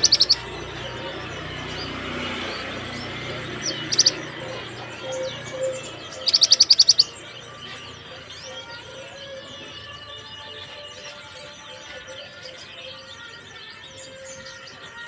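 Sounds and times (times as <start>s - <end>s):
bird singing high sharp notes: 0.0s - 15.0s
faint bird chirps: 5.0s - 7.2s.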